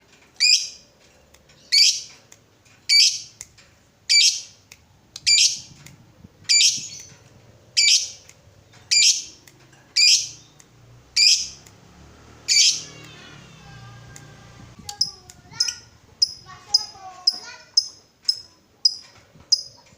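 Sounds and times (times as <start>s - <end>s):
bird twittering: 2.9s - 3.4s, 6.5s - 7.1s, 7.7s - 8.3s, 8.9s - 9.4s, 10.0s - 11.6s
bird giving shrill harsh calls: 6.5s - 7.1s, 7.8s - 8.2s, 8.9s - 9.4s, 10.0s - 10.4s, 12.5s - 12.9s.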